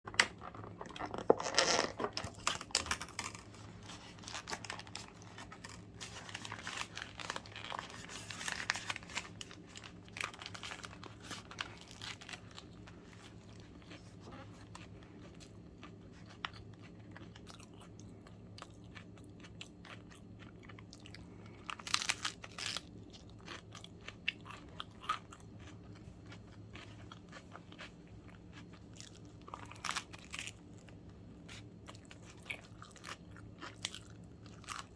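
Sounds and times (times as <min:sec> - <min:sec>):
crunchy sandwich bites: 0:19.2 - 0:34.9.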